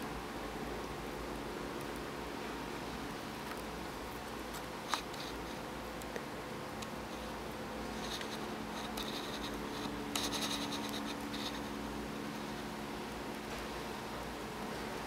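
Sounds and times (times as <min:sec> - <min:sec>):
low steady hum: 0:00.0 - 0:15.0
faint scratching: 0:03.5 - 0:05.8, 0:07.0 - 0:12.8.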